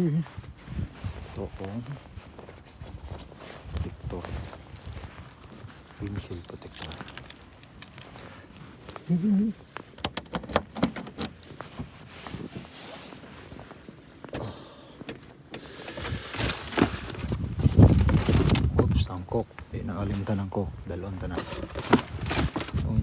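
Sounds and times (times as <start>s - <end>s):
sharp clicks and knocks: 9.9s - 11.3s.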